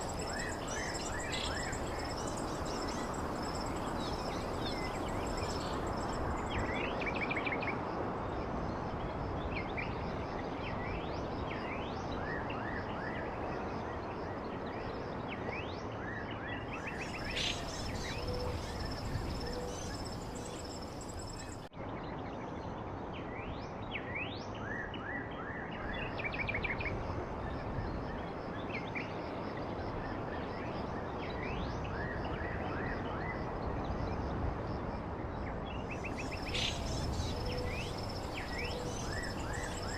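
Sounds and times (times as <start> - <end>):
small songbirds chirping: 0.0 - 7.8, 16.5 - 21.7, 35.4 - 39.9.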